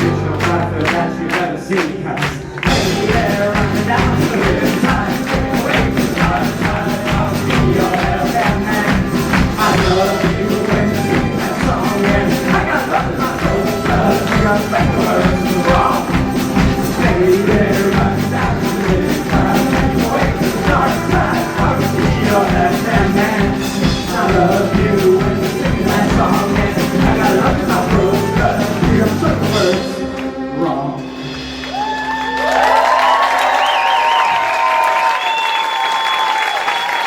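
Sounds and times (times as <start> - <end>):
voices singing: 0.0 - 30.9
live band playing: 0.0 - 34.5.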